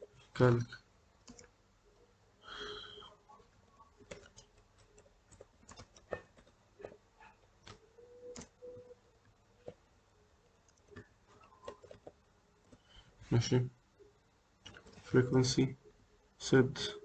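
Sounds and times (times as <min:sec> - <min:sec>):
keyboard keys clicking: 0:04.0 - 0:09.8, 0:10.6 - 0:12.8.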